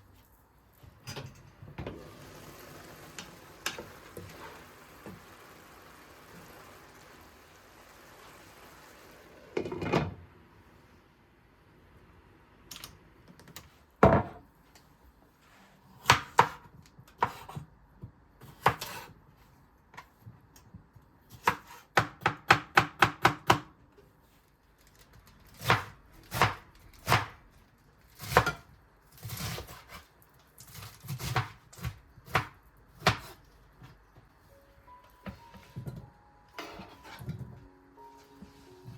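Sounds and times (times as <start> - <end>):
knife chopping on cutting board: 30.7 - 33.4.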